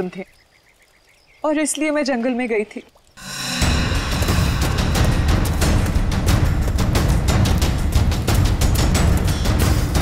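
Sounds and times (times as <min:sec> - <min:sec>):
tense dramatic music: 0:03.2 - 0:10.0.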